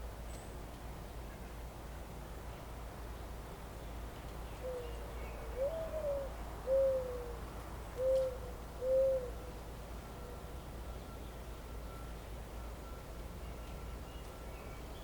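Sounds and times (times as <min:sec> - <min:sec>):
bird cooing: 0:04.6 - 0:07.4, 0:08.0 - 0:09.6.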